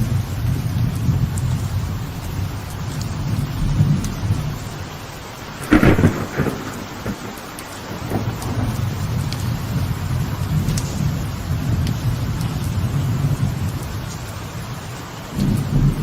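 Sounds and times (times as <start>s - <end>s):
rolling thunder: 0.0s - 13.8s, 15.3s - 16.0s
rain on a veranda: 0.0s - 16.0s
thunder clap: 5.4s - 13.8s, 15.3s - 16.0s.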